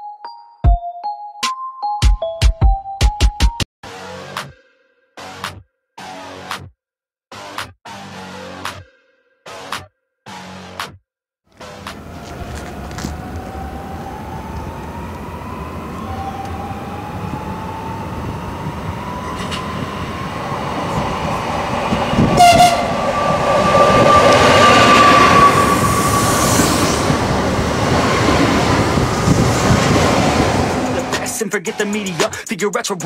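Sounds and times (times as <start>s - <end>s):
electric train motor whine: 11.6s - 31.1s
train running on rails: 11.6s - 31.4s
train horn blast: 22.1s - 27.3s.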